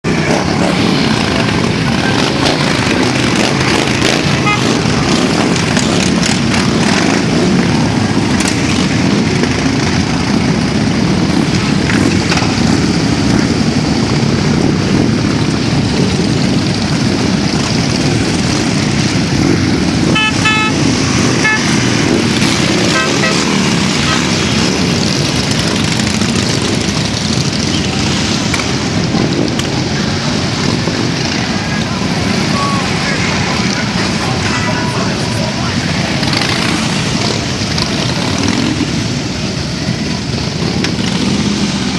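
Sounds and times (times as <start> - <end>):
motorcycle engines running: 0.1 - 41.9
short horn beeps: 4.3 - 5.2, 20.1 - 22.1, 22.7 - 24.3.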